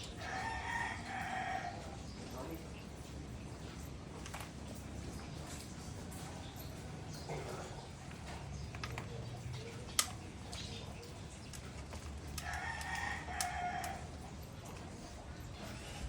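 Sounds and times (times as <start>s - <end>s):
rooster crowing: 0.2s - 2.0s, 12.4s - 14.2s.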